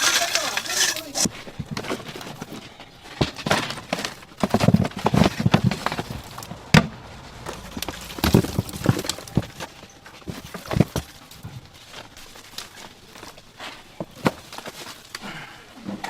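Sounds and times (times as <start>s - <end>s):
irregular knocks and clatters: 1.5s - 12.1s.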